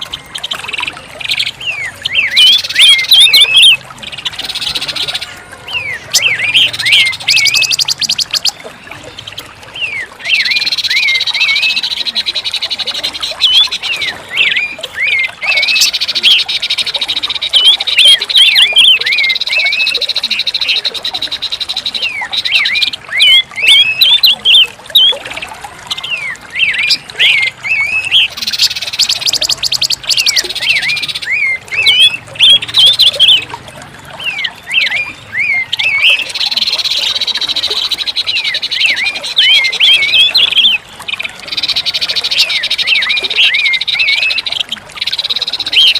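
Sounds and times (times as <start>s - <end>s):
bird chirping song: 0.0s - 45.9s.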